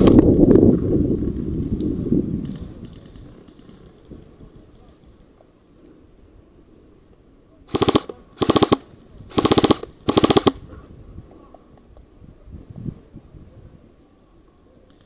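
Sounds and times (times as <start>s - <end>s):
airsoft gun bursts: 7.7s - 10.6s.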